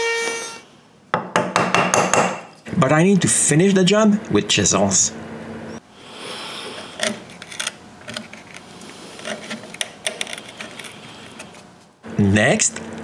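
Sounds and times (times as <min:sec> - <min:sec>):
chisel scraping wood: 0:06.7 - 0:11.6.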